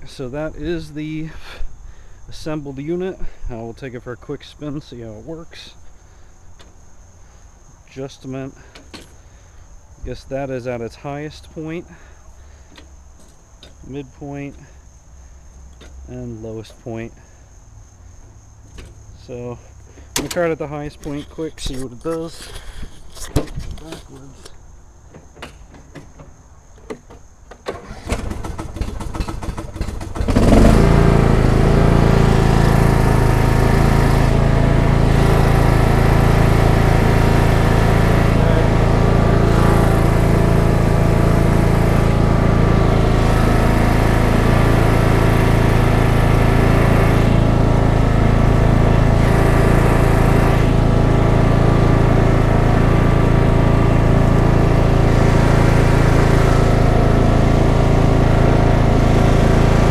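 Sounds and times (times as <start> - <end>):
lawn tractor engine starting: 18.6 - 24.6, 26.9 - 59.9.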